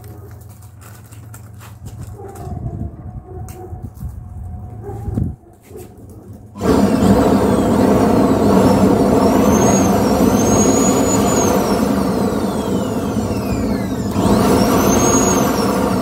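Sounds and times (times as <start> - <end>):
stove and blower rushing: 6.4 - 16.0
faint high whistles: 9.4 - 11.8.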